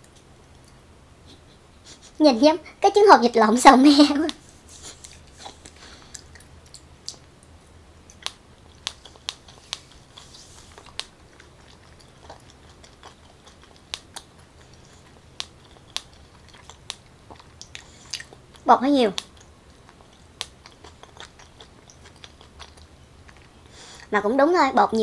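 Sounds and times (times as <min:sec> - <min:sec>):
person chewing with mouth clicks: 0:04.3 - 0:24.1.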